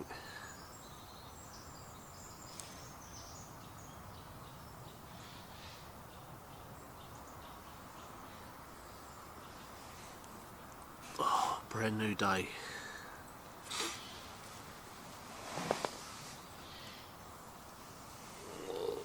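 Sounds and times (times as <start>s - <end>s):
faint birdsong: 0.0s - 19.0s
steady background hiss: 0.0s - 19.0s
faint click: 2.5s - 2.8s.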